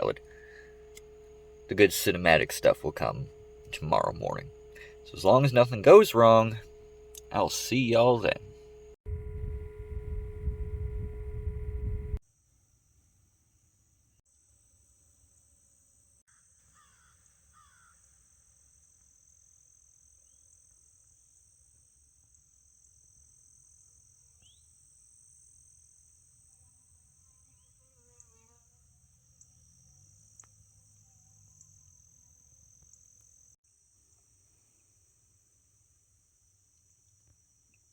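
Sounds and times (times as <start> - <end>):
low hum: 0.0 - 12.2
faint insect chirps: 0.0 - 37.9.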